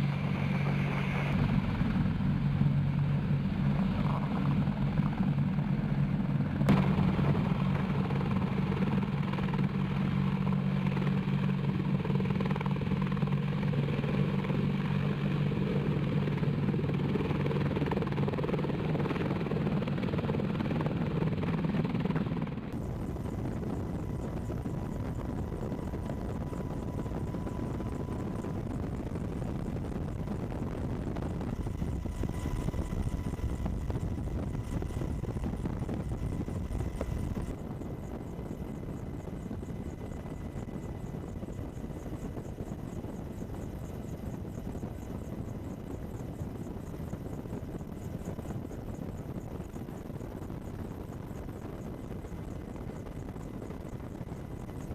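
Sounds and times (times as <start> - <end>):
rushing noise with high tone: 0.0 - 19.3
helicopter engines and rotor: 0.0 - 54.9.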